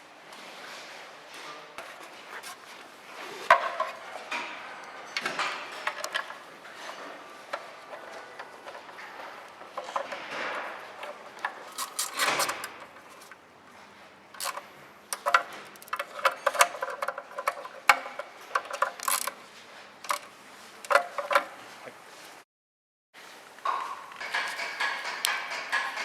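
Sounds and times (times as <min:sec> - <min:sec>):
hard objects clicking and knocking: 0:03.5 - 0:13.4, 0:14.4 - 0:19.4, 0:23.7 - 0:26.0.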